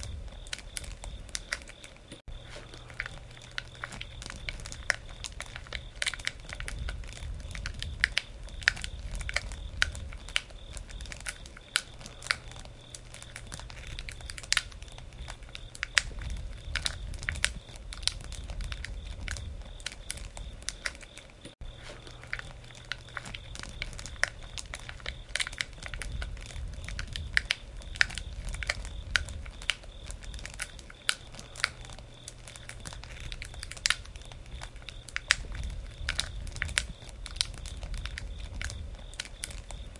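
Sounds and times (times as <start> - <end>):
campfire crackling: 0.0 - 39.9
low rumble: 2.3 - 20.6, 21.6 - 30.6.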